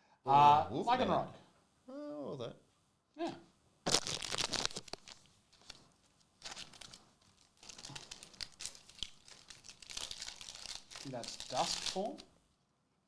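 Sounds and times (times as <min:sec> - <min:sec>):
foil wrapper crinkling and tearing: 0:03.9 - 0:12.3.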